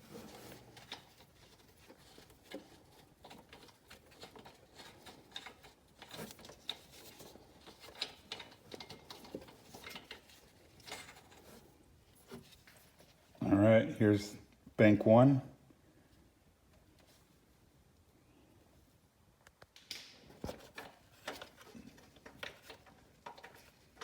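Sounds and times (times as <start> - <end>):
hand tools clicking and rattling: 0.2 - 11.6, 20.4 - 24.0.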